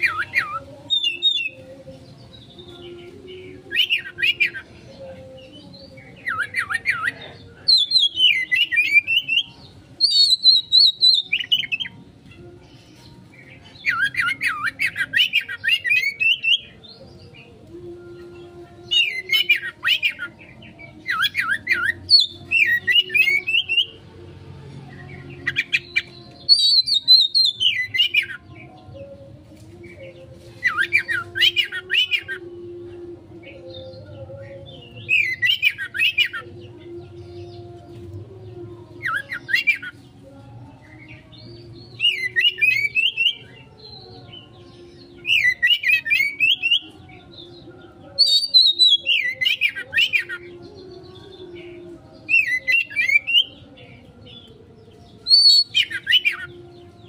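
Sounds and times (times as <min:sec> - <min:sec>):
bird singing trills and whistles: 0:00.0 - 0:12.0, 0:12.6 - 0:17.6, 0:18.4 - 0:24.0, 0:25.2 - 0:28.9, 0:29.8 - 0:32.6, 0:33.4 - 0:38.2, 0:38.9 - 0:40.2, 0:41.0 - 0:57.0.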